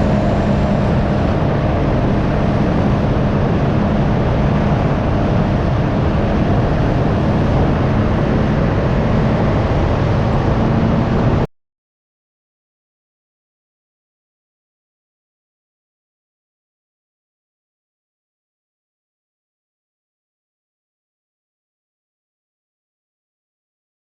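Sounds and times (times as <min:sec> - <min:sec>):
motorcycle engine running: 0:00.0 - 0:11.5
wind rushing over microphone: 0:00.0 - 0:11.5.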